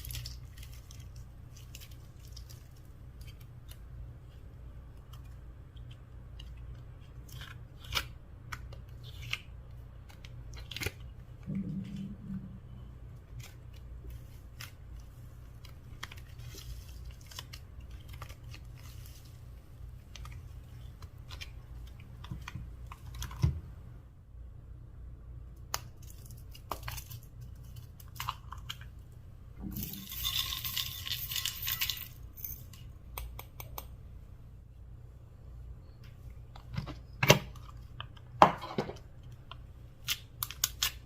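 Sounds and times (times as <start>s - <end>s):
low hum: 9.7s - 26.2s.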